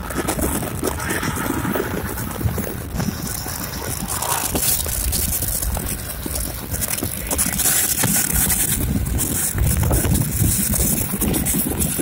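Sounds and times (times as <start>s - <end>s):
train wheels rumbling on track: 0.0s - 12.0s
wind hissing: 0.0s - 12.0s.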